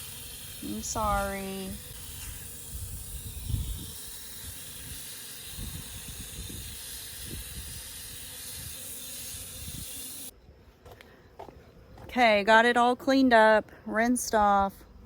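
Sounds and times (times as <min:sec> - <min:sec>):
garden hose spraying water: 0:00.0 - 0:10.3.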